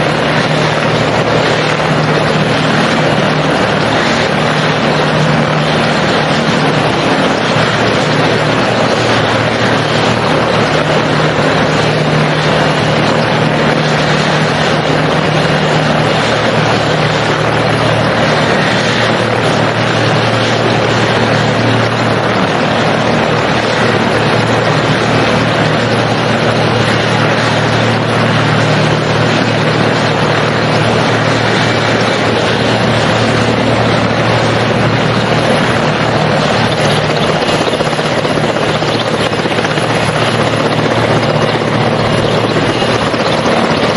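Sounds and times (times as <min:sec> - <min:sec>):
helicopter rotor and turbine drone: 0:00.0 - 0:43.9.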